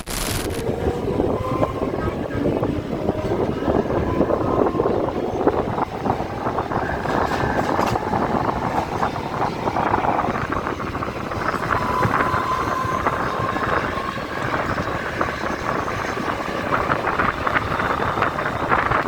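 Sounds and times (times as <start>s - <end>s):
electric train rumbling on rails: 0.1s - 19.0s
wind buffeting microphone: 0.1s - 19.0s.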